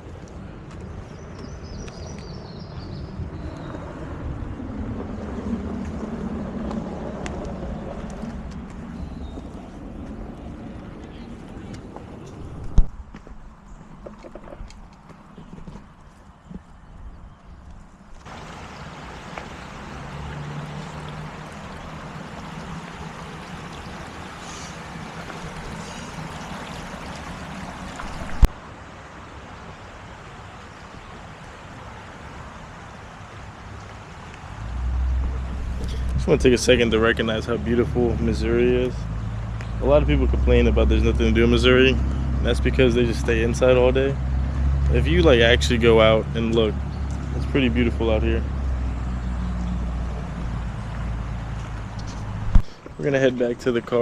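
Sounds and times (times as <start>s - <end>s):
river water flowing: 18.1s - 54.0s.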